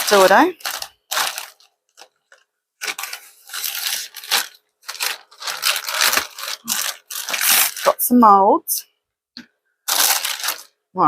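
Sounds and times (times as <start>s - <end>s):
packaging being torn open: 0.0s - 8.0s, 9.9s - 10.7s.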